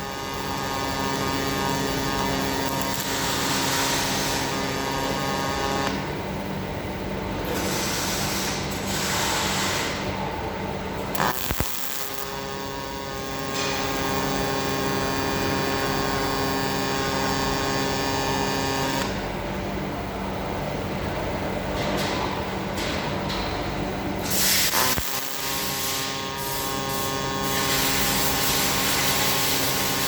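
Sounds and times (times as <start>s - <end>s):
welding arc hiss and buzz: 0.0s - 30.0s.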